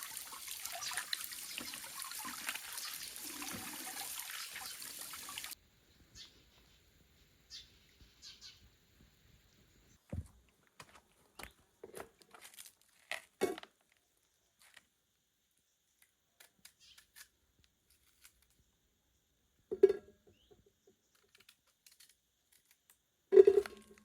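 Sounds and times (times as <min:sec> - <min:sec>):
objects being handled: 0:20.9 - 0:24.0.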